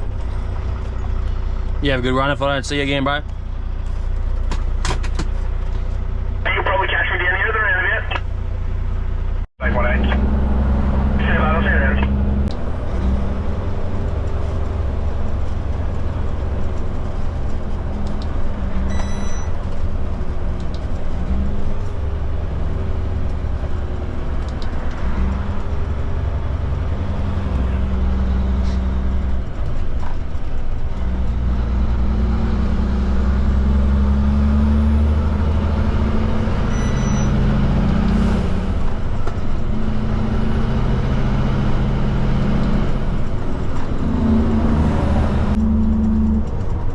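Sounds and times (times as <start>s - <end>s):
diesel truck engine under load: 0.0s - 46.9s.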